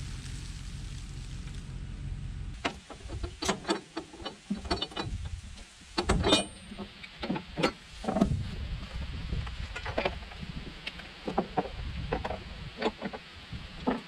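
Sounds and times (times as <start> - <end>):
low hum: 0.0 - 3.3
metallic clicks and clanks: 2.6 - 5.3, 6.0 - 8.2.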